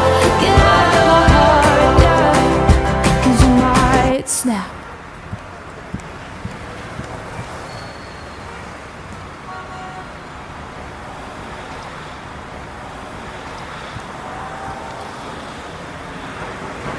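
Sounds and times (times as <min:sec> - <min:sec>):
road traffic: 0:00.0 - 0:16.9.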